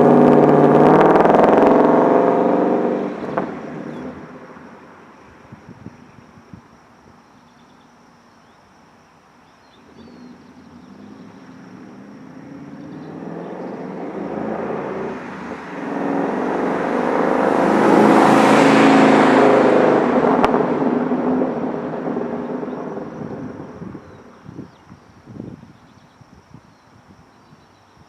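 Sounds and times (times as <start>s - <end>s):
car engine passing by: 9.8s - 24.2s.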